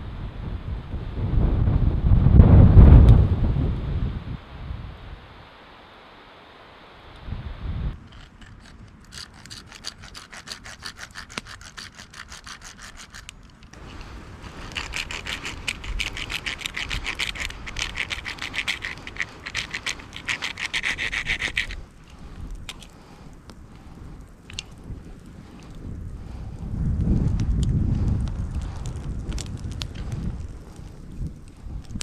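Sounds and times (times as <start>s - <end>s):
hand tool scraping wood: 8.0s - 23.2s.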